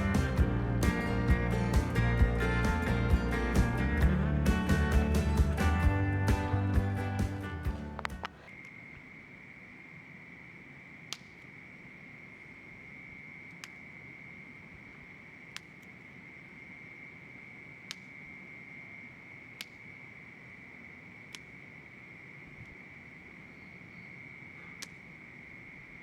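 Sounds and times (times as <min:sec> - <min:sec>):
insect trilling: 0:08.1 - 0:26.0
sharp clicks: 0:11.1 - 0:11.5, 0:13.5 - 0:13.9, 0:17.8 - 0:18.2, 0:19.6 - 0:19.9, 0:24.8 - 0:25.1.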